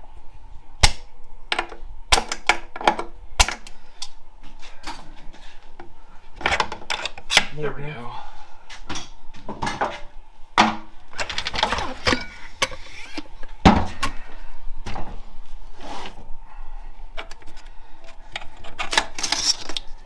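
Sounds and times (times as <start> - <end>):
metal parts clinking and scraping: 18.3 - 19.8.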